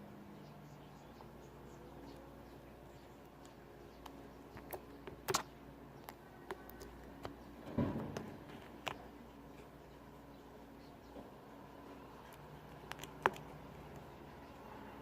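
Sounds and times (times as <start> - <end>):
slime squishing: 3.3 - 7.4, 8.1 - 9.2, 12.1 - 14.2
slime clicking and popping: 4.0 - 7.4.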